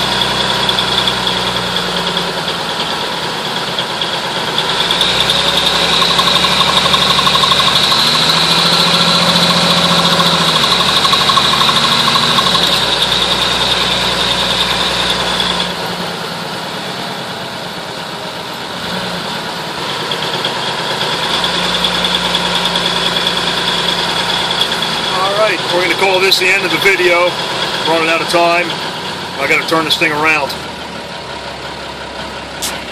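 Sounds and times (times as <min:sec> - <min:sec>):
diesel truck engine running: 0:00.0 - 0:32.9.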